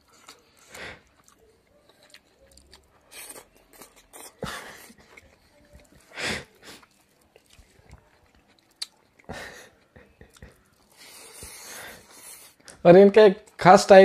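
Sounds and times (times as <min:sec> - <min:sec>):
man chewing and smacking: 0:00.0 - 0:12.8.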